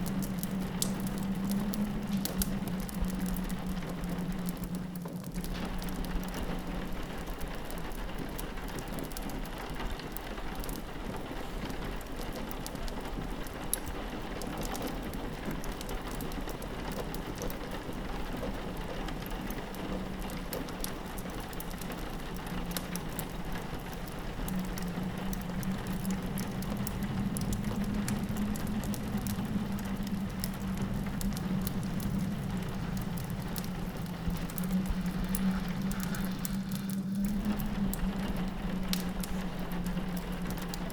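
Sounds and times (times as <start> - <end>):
fireplace crackles: 0.0 - 40.9
rain pattering on window: 0.0 - 40.9
low steady drone: 21.9 - 40.9.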